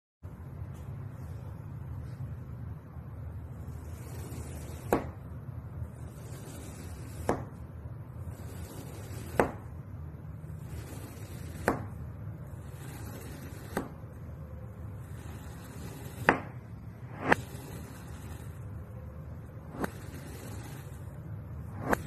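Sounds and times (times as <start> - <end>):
low steady hum: 0.2 - 22.0
knife chopping through soap: 3.9 - 5.2, 6.1 - 7.6, 8.3 - 9.7, 10.6 - 12.0, 12.7 - 14.0, 15.2 - 16.5.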